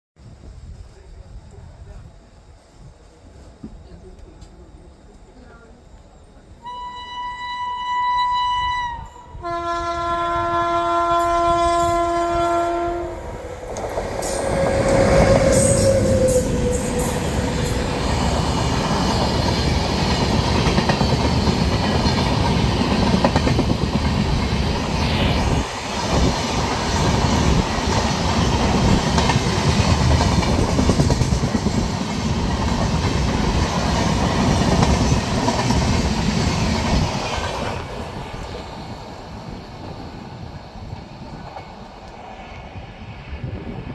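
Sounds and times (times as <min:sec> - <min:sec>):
locomotive horn blasts: 0:06.6 - 0:13.2
train rushing past: 0:07.9 - 0:43.9.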